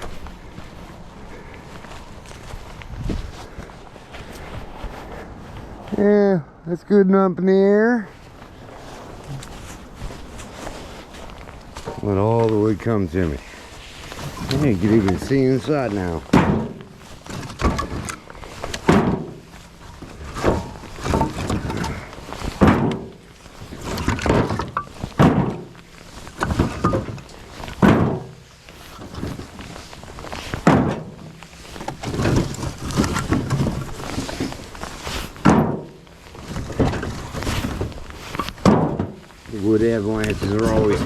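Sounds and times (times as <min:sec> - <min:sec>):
firewood knocking and thudding: 0:14.0 - 0:39.5.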